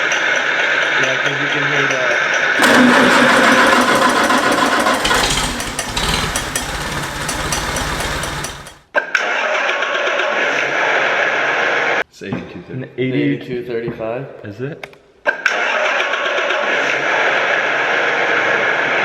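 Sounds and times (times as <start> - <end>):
diesel engine rumbling: 2.6 - 8.8
starter motor cranking: 2.6 - 8.9.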